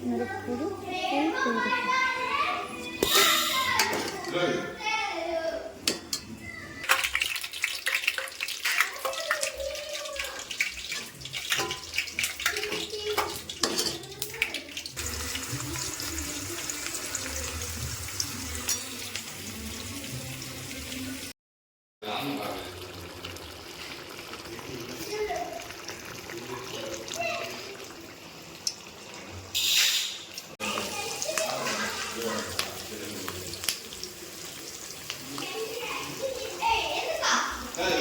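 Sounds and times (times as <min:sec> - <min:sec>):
running water: 0:05.9 - 0:21.3, 0:22.1 - 0:29.5, 0:30.4 - 0:38.0.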